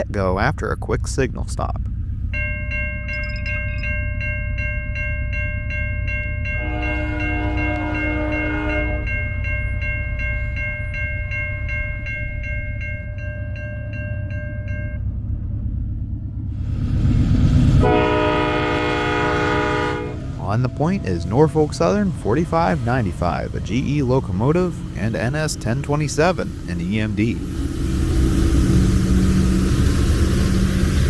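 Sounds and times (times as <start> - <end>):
diesel locomotive rumble: 0.0 - 31.0
locomotive bell ringing: 2.3 - 15.1, 17.8 - 31.0
locomotive air horn: 6.6 - 9.2, 17.8 - 27.7.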